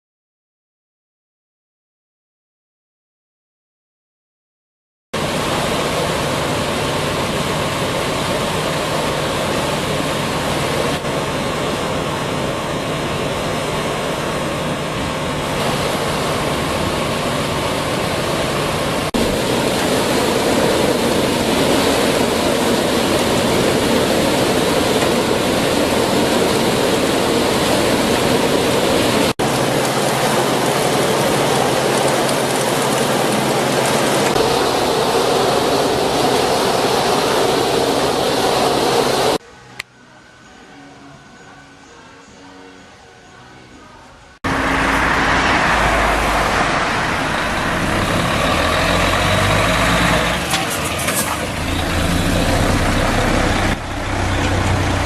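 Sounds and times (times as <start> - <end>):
low motor hum: 44.5 - 50.3, 51.5 - 55.0.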